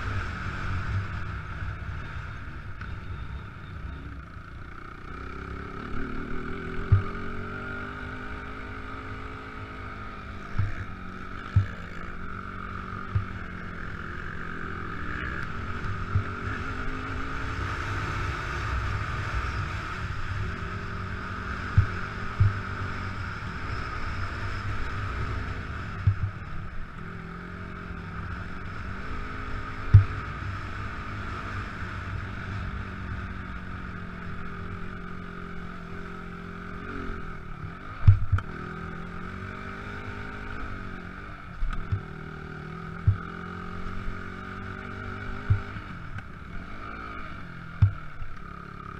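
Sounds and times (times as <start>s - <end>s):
motocross bike engine revving: 4.6s - 48.9s.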